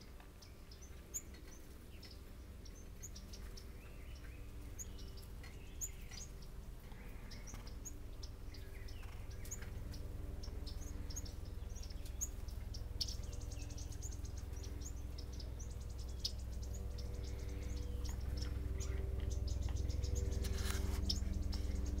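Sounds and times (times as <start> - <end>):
steady low hum: 0.0 - 22.0
songbird chip calls: 0.4 - 22.0
buzzy high bird trill: 7.3 - 22.0.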